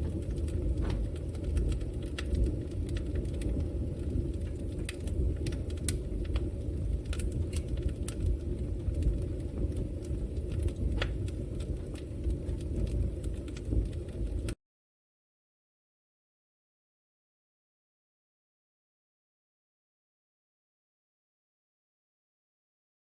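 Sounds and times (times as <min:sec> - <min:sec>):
fire burning low rumble: 0:00.0 - 0:14.6
wood crackling and popping: 0:00.0 - 0:14.6.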